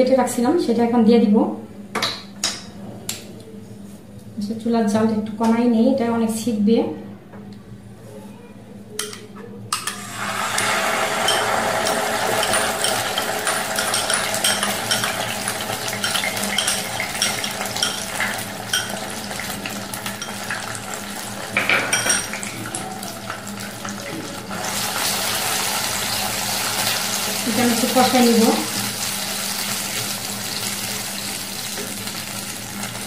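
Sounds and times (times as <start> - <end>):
paste sizzling in hot oil: 10.0 - 21.4.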